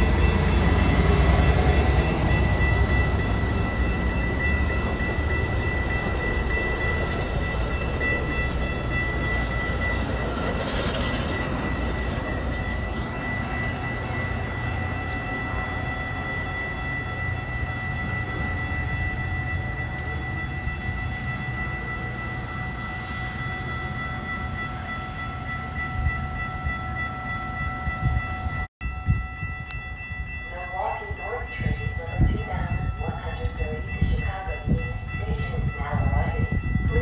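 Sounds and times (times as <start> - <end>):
high ringing tones: 0.0 - 37.0
train wheels rumbling on rail: 0.0 - 37.0.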